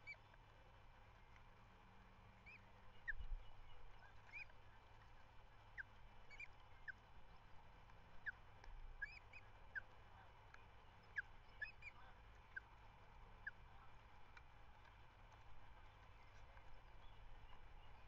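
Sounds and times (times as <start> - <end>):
faint high bird calls: 0.0 - 0.4, 2.4 - 7.5, 9.0 - 9.9, 10.8 - 12.7
low background rumble: 0.0 - 18.0.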